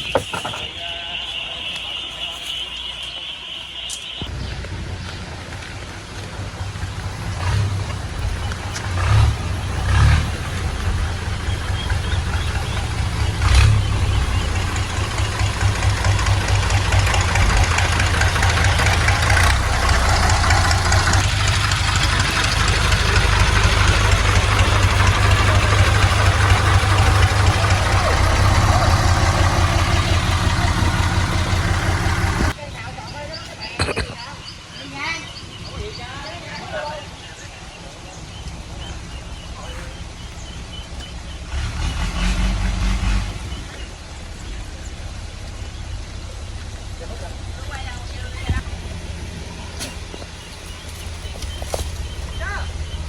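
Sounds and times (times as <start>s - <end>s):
engine running: 4.2s - 32.6s, 37.3s - 53.0s.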